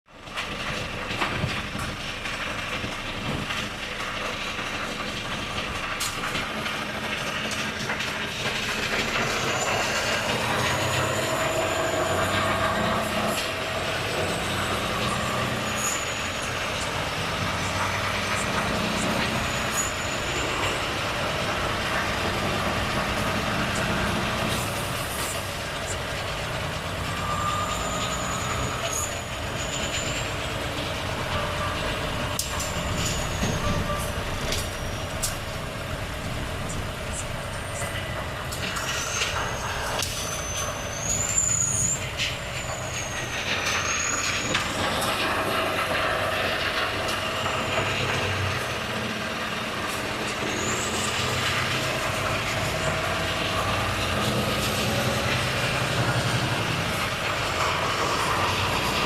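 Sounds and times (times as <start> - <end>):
road noise: 0.1 - 59.0
truck diesel engine running: 0.1 - 59.0
brief high squeals: 27.2 - 30.3, 38.8 - 42.0.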